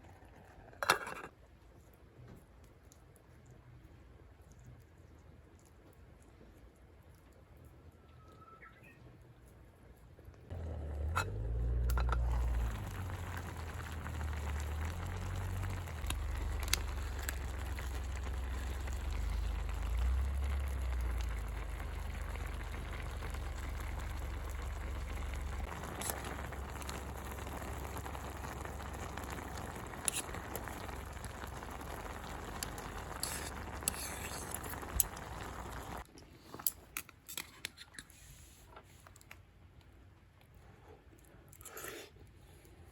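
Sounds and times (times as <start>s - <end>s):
campfire crackles: 10.2s - 36.7s
low rumble: 10.5s - 29.9s
broth bubbling in a pot: 10.5s - 36.1s.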